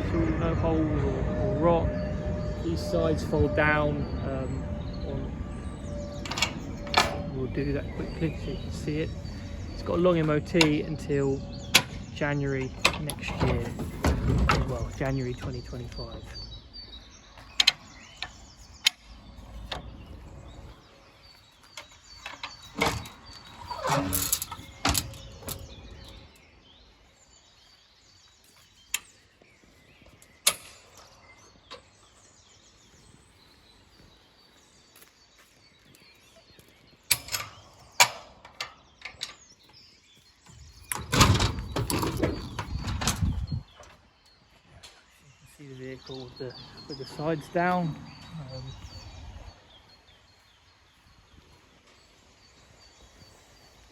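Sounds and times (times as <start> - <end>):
metallic clicks and clanks of catches: 6.1 - 8.2, 9.0 - 15.2, 17.6 - 19.1, 21.8 - 26.2, 30.4 - 31.9, 37.1 - 39.6, 40.8 - 44.0
knocking and rattling: 9.1 - 15.6, 40.9 - 43.6.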